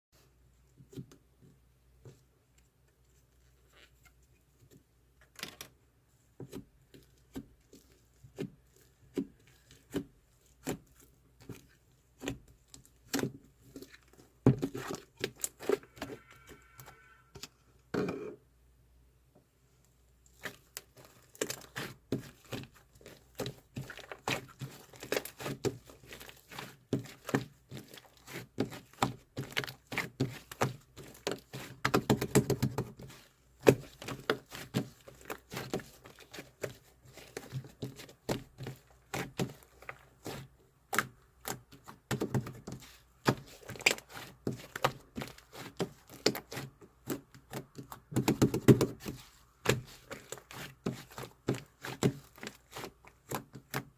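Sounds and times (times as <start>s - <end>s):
small taps clicks and crinkles: 0.8s - 5.8s, 19.8s - 53.9s.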